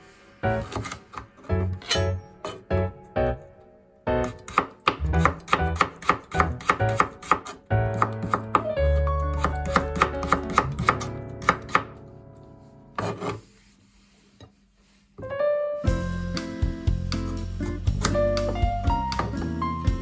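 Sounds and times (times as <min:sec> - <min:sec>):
background music: 0:00.0 - 0:13.2, 0:15.3 - 0:20.0
knife chopping on cutting board: 0:00.6 - 0:02.6, 0:04.2 - 0:08.7, 0:09.3 - 0:11.9, 0:13.0 - 0:13.4, 0:17.7 - 0:19.4.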